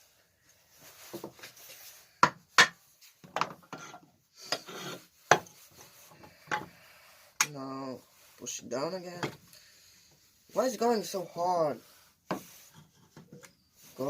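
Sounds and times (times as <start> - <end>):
rubbing and scraping: 2.9 - 9.2, 10.3 - 14.0.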